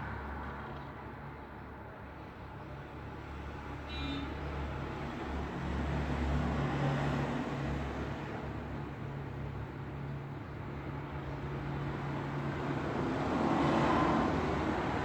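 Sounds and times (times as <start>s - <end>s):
passing road traffic: 11.5s - 15.0s.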